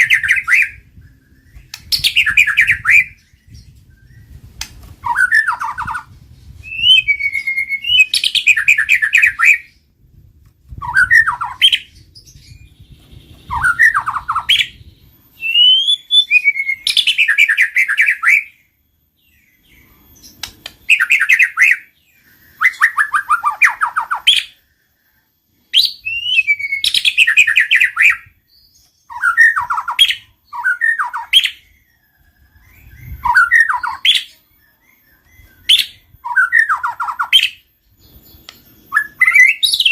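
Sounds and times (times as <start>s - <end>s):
songbird singing whistled phrases: 0.0s - 39.9s.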